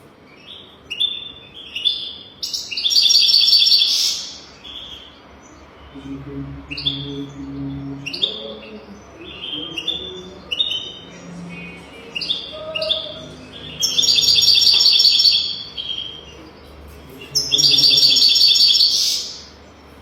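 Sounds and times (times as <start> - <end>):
finch twittering: 0.5 - 16.5, 17.2 - 19.5
buzzy bird trill: 2.4 - 16.4, 17.2 - 19.6.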